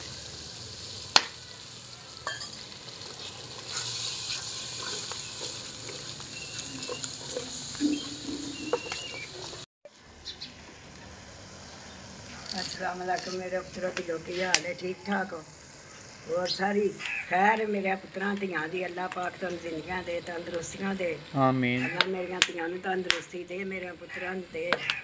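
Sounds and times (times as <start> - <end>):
masala sizzling in oil: 0.0 - 25.0
spatula stirring against clay pot: 2.3 - 9.6.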